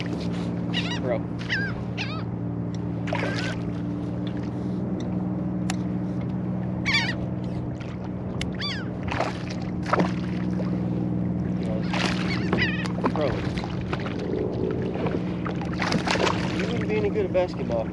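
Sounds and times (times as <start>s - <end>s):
seabirds giving harsh cries: 0.0s - 4.7s, 6.7s - 10.6s, 11.7s - 13.8s
steady low hum: 0.0s - 17.9s.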